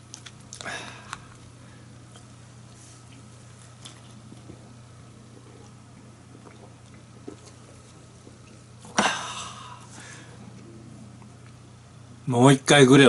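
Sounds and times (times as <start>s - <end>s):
person chewing: 0.0s - 9.0s
steady low hum: 0.0s - 13.0s.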